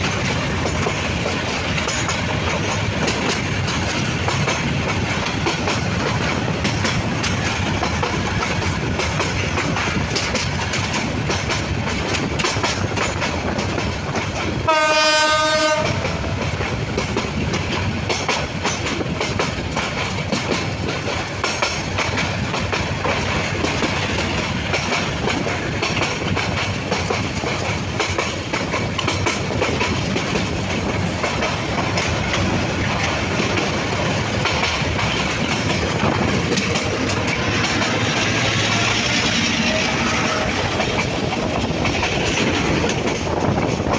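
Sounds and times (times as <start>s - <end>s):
train wheels rumbling on rail: 0.0s - 43.9s
wheels clacking over rail joints: 0.0s - 43.9s
train horn blast: 14.6s - 16.2s, 38.9s - 40.8s.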